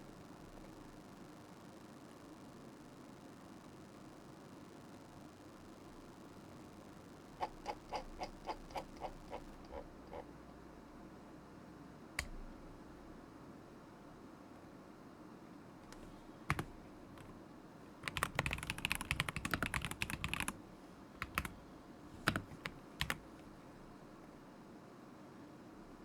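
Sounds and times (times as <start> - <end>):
mechanical keyboard keys clacking: 7.4 - 10.2, 15.9 - 17.3, 18.0 - 20.6, 21.2 - 21.6, 22.2 - 23.2.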